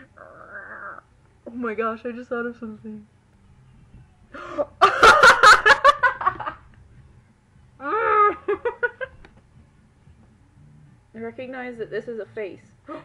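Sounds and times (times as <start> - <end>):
woman laughing: 7.8 - 9.2.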